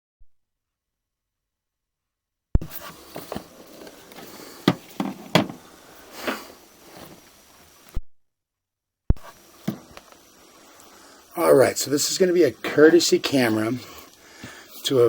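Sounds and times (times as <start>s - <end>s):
knocks and thumps: 2.6s - 7.2s, 9.1s - 10.2s
faint hiss: 2.6s - 8.0s, 9.2s - 15.0s.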